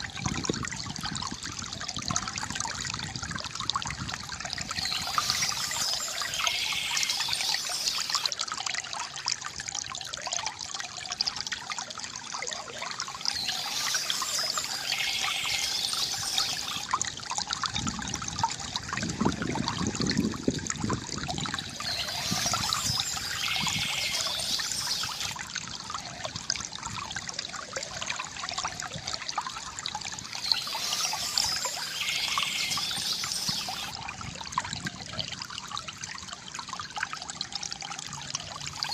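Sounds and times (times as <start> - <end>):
stream water flowing: 0.0 - 38.9
bird song phrase: 21.8 - 25.3, 30.4 - 33.9.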